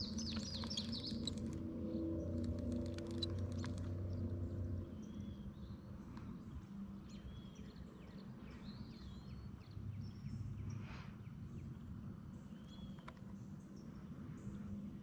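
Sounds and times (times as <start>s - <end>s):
birds chirping: 0.0s - 1.6s.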